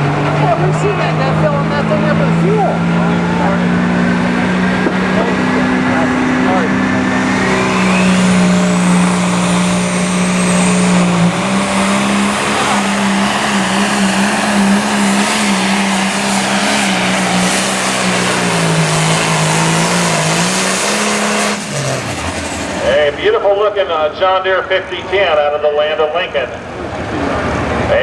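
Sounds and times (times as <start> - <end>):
tractor diesel engine under load: 0.0 - 28.0
high turbo whistle: 7.2 - 21.9.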